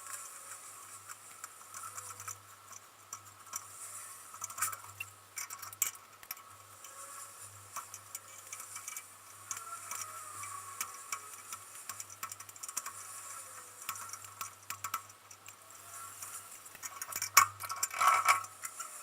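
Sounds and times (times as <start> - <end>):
hand tools clicking on metal: 7.7 - 19.0.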